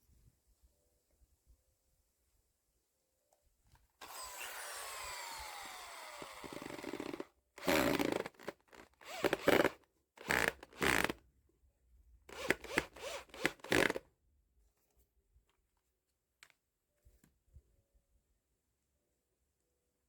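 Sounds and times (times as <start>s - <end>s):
power tool winding down: 4.0s - 11.2s, 12.3s - 14.0s
rough cutting or scraping: 4.0s - 11.2s.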